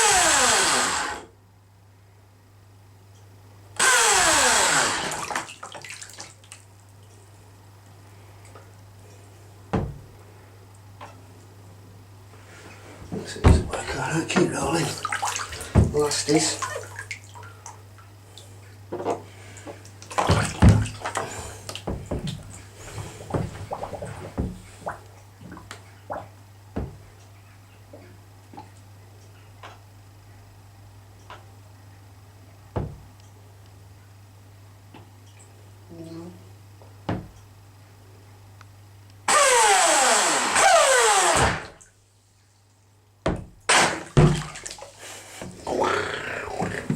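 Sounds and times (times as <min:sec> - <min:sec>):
electric motor whine: 0:00.0 - 0:01.3, 0:03.8 - 0:05.2, 0:39.3 - 0:41.6
water splashing and sloshing: 0:04.6 - 0:07.6, 0:12.6 - 0:28.9, 0:41.6 - 0:46.9
steady low hum: 0:06.7 - 0:39.3
sharp knocks: 0:43.2 - 0:44.6.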